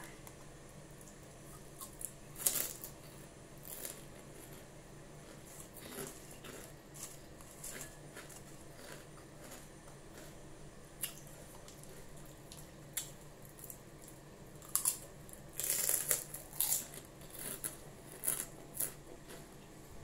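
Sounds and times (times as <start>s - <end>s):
crisp crunches of pork rinds: 1.5s - 10.4s, 11.0s - 19.5s.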